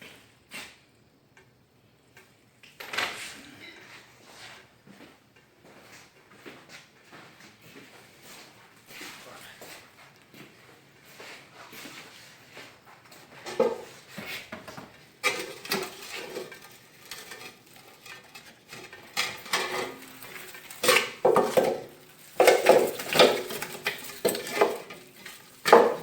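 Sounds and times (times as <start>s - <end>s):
hard objects clattering: 13.4s - 26.0s.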